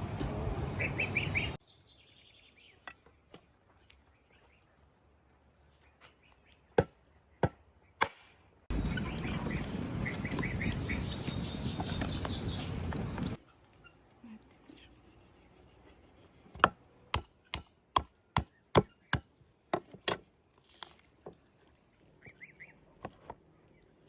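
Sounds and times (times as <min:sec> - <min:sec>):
birds chirping: 0:00.7 - 0:08.0, 0:08.7 - 0:13.4.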